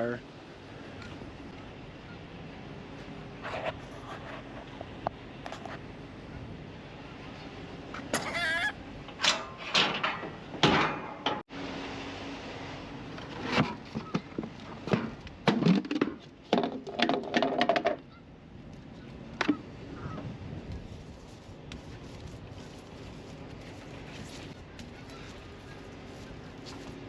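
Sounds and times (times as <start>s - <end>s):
geese honking: 8.2s - 8.8s.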